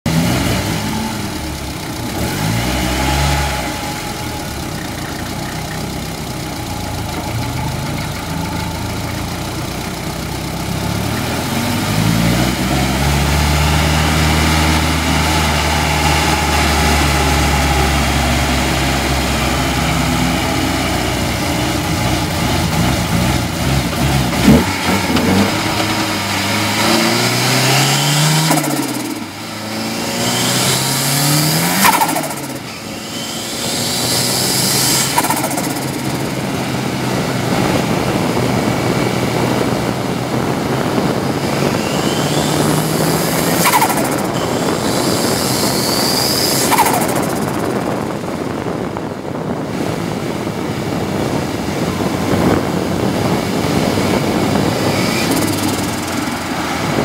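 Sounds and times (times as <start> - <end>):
race car engine revving: 0.0 - 50.0, 51.1 - 57.0
sharp crack: 42.0 - 47.8.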